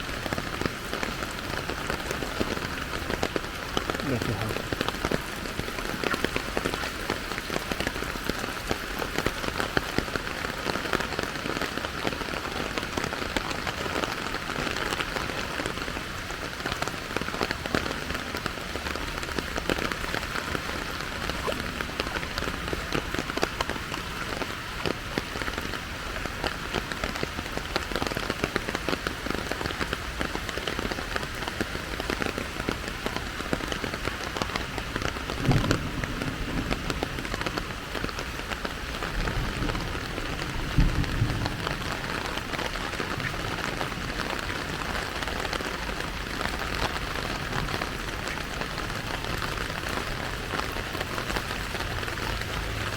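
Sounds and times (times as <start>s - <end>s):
steady rain patter: 0.0s - 52.9s.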